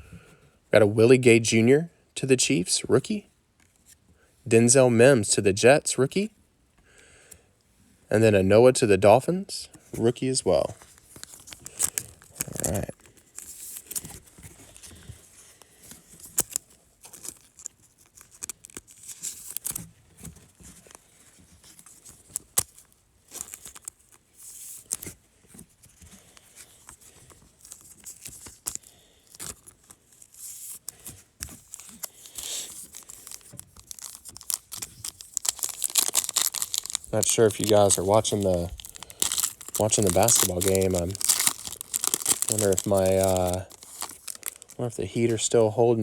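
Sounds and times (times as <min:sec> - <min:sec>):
cards clicking and rustling: 0:10.0 - 0:45.4
foil wrapper tearing and crinkling: 0:10.8 - 0:15.0, 0:15.7 - 0:25.2, 0:25.9 - 0:45.6.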